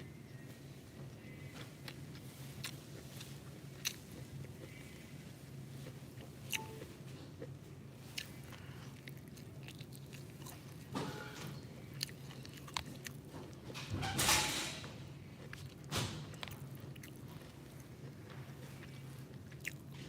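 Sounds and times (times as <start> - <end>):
steady low hum: 0.0 - 13.9
person chewing and biting food: 1.8 - 5.0, 5.8 - 10.9, 11.8 - 13.7, 15.4 - 20.0.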